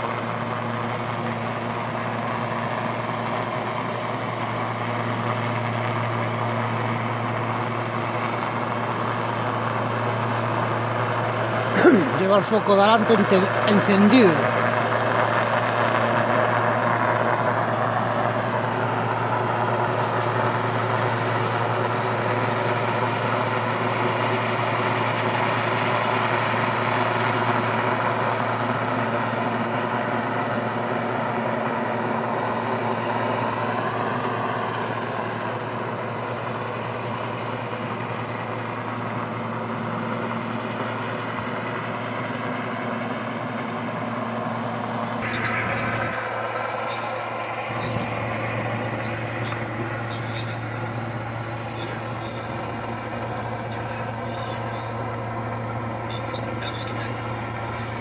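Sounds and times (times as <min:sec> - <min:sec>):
helicopter rotor and turbine drone: 0:00.0 - 0:58.0.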